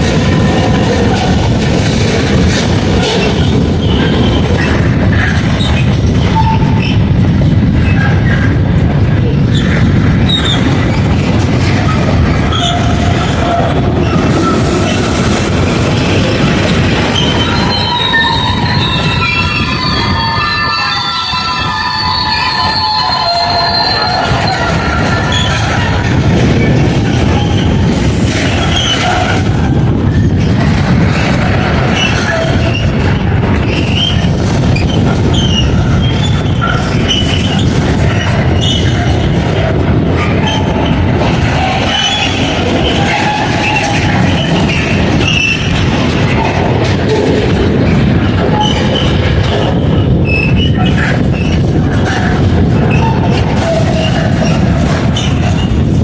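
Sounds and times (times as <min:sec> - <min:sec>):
train rumbling past: 0:00.0 - 0:56.0
train wheels squealing: 0:03.1 - 0:07.0, 0:09.5 - 0:11.0, 0:16.2 - 0:26.0, 0:26.6 - 0:29.5, 0:31.9 - 0:39.4, 0:40.3 - 0:46.7, 0:48.2 - 0:55.8.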